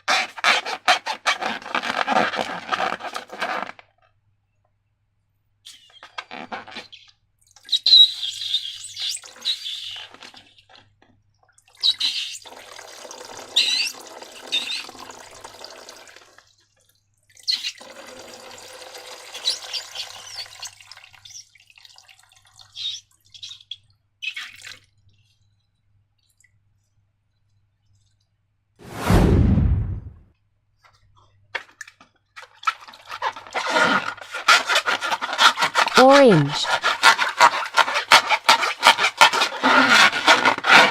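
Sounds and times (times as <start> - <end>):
liquid being poured or stirred: 10.2 - 28.2, 31.6 - 40.9
slime squelching: 32.4 - 40.9.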